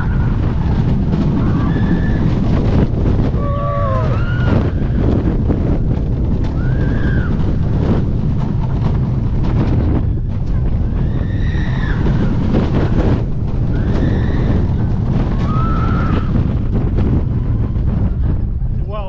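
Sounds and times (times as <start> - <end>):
roller coaster rumbling on track: 0.0 - 19.0
wind buffeting microphone: 0.0 - 19.0
riders yelling: 3.4 - 4.5.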